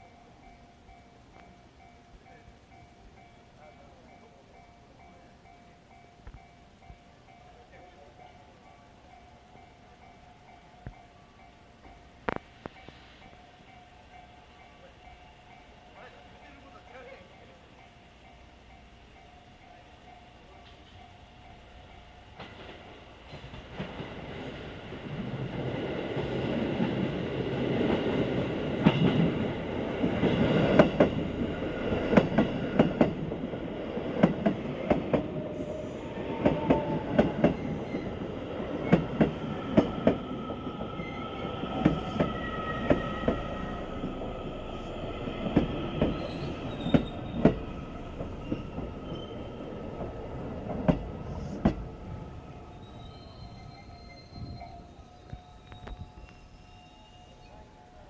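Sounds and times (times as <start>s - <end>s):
electric train pulling in: 0.0s - 58.0s
wheel and brake squeals: 37.4s - 38.2s, 40.9s - 44.0s, 46.1s - 49.6s, 52.6s - 57.6s.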